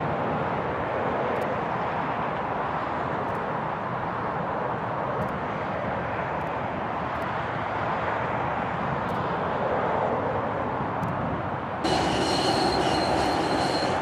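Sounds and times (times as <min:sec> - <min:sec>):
jet engines rushing: 0:11.8 - 0:14.0.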